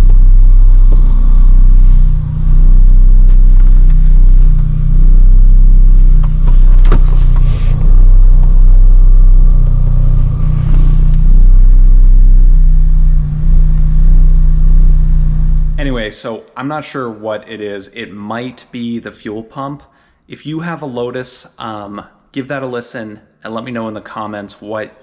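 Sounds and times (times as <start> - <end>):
car engine idling: 0.0 - 16.0
steady whir: 0.0 - 16.0.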